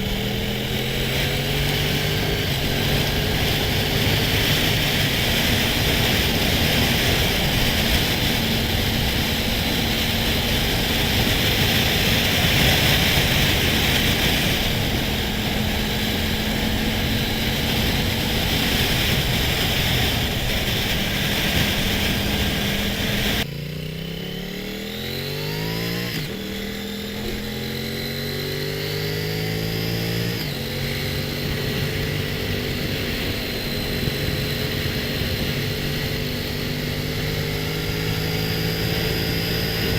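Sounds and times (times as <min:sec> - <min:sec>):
motorcycle engine accelerating: 0:00.0 - 0:39.9
wind rush: 0:01.3 - 0:23.4, 0:29.6 - 0:39.9.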